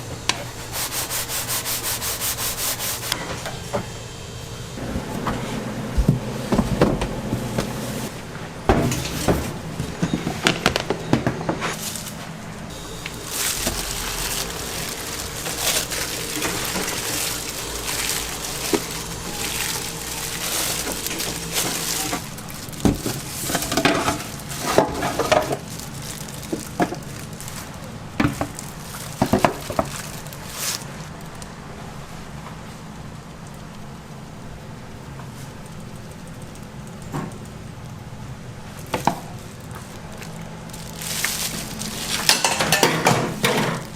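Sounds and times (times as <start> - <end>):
steady low hum: 0.0 - 43.9
utensils and dishes clattering: 13.2 - 27.6, 40.8 - 43.9.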